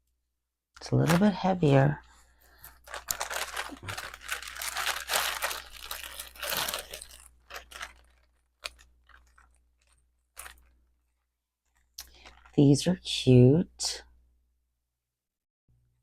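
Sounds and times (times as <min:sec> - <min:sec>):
wrapping crinkling and rustling: 0:00.8 - 0:12.7.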